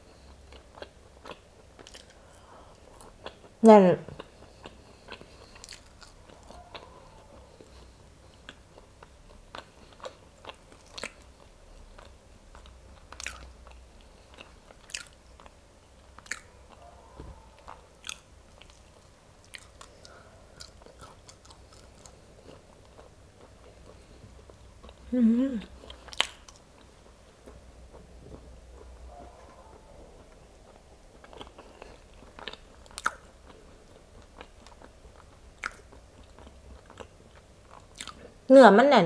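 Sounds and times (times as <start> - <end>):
chewing beans: 0.0 - 38.4
mouth clicks and smacks: 10.8 - 11.3, 16.2 - 16.5, 25.9 - 26.7, 30.3 - 33.4, 34.4 - 36.4.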